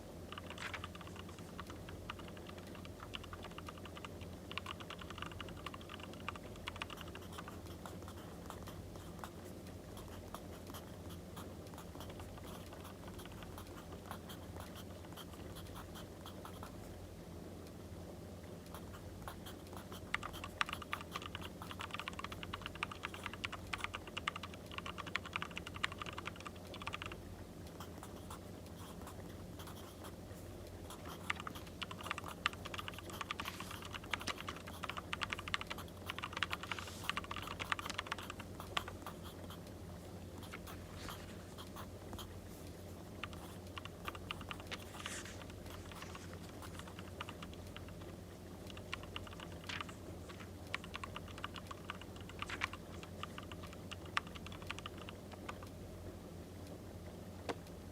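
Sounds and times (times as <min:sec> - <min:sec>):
steady low hum: 0:00.0 - 0:57.9
pen scratching on paper: 0:06.9 - 0:16.7, 0:30.9 - 0:39.6
faint wood fire crackles: 0:42.3 - 0:51.4.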